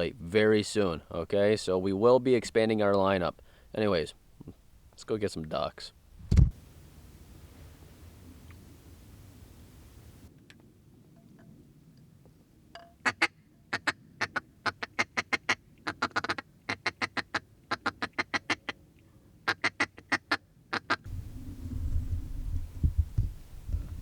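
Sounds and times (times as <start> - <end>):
duck quacking: 13.1 - 18.8
low rumble: 21.1 - 24.0.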